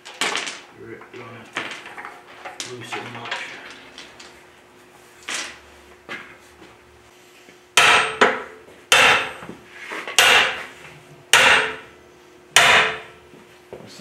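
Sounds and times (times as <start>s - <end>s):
hammer striking metal: 7.8s - 9.4s, 10.2s - 10.7s, 11.3s - 11.9s, 12.6s - 13.2s.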